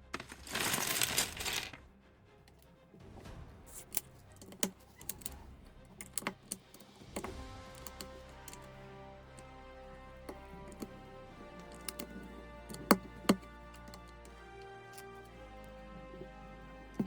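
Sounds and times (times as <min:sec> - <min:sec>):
quiet background music: 0:00.0 - 0:17.0
plastic bricks clicking together: 0:03.7 - 0:17.0.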